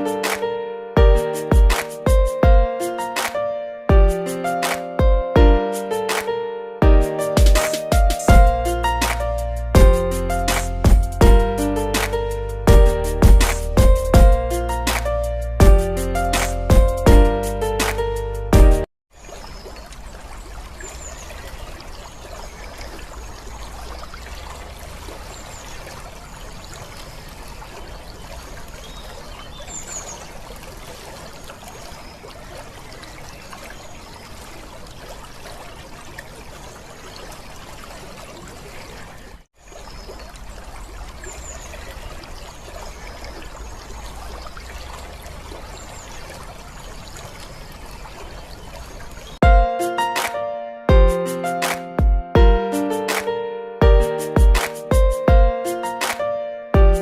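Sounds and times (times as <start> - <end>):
water trickling: 19.1 - 49.4.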